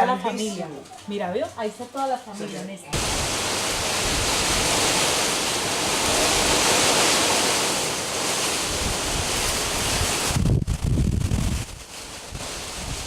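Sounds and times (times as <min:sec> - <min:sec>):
hurricane wind: 0:03.0 - 0:13.0
rain: 0:03.0 - 0:13.0.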